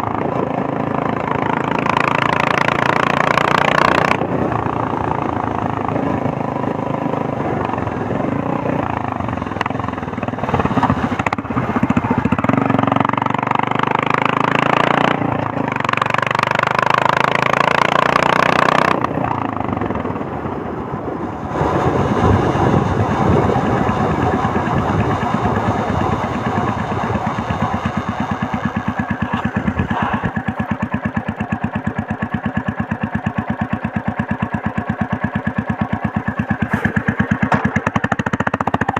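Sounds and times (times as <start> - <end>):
motorcycle engine thumping: 21.8 - 38.9.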